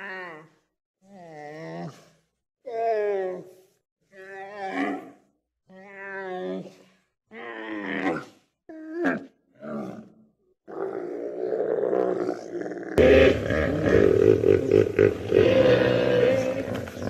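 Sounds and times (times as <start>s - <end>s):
hippopotamus deep call: 13.0s - 17.0s
rasping animal call: 13.0s - 17.0s.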